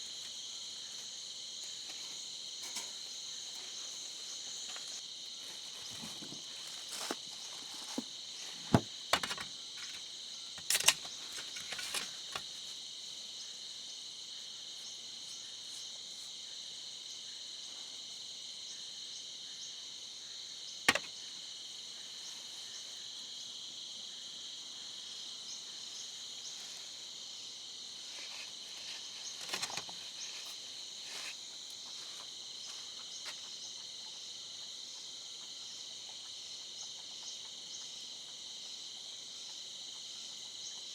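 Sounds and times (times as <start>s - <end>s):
crickets chirring: 0.0s - 40.9s.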